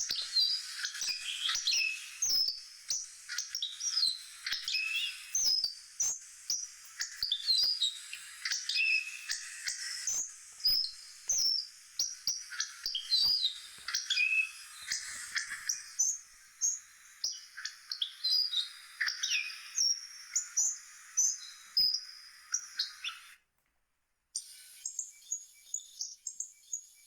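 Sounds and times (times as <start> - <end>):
bird chirping and whistling: 0.0 - 23.4.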